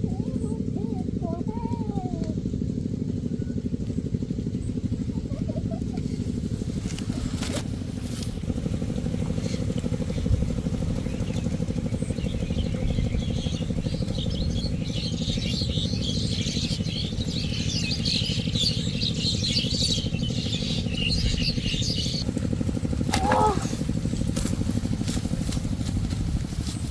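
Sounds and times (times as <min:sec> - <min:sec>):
small engine droning: 0:00.0 - 0:26.9.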